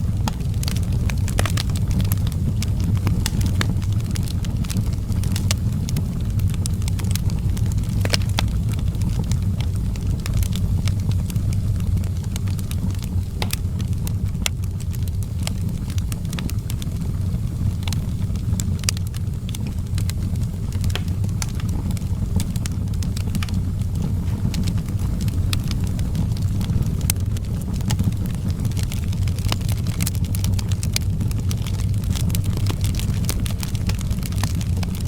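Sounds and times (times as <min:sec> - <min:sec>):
wood fire crackling: 0:00.0 - 0:35.0
sharp pops and snaps: 0:09.6 - 0:17.0, 0:17.8 - 0:35.0.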